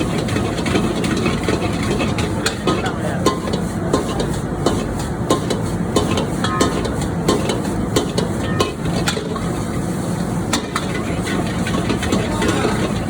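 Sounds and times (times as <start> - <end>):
spatula scraping a pan: 0.0 - 9.8
rice sizzling in a pan: 0.0 - 13.0.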